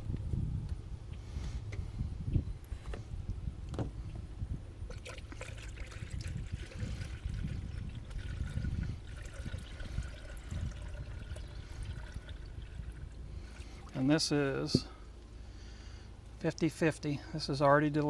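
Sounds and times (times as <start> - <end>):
coolant trickling and gurgling: 4.0 - 16.3.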